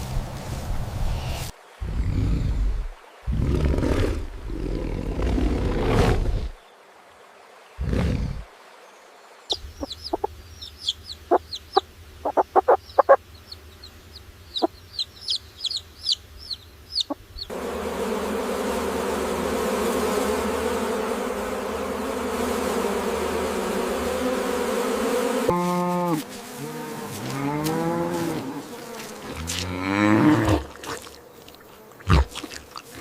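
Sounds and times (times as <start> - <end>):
insect-like buzz: 7.8 - 33.0
chickens clucking: 9.5 - 17.5.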